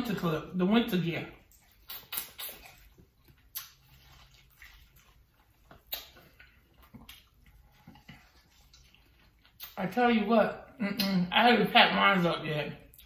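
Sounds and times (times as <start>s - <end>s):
person chewing wetly: 1.2s - 9.9s, 12.8s - 13.0s.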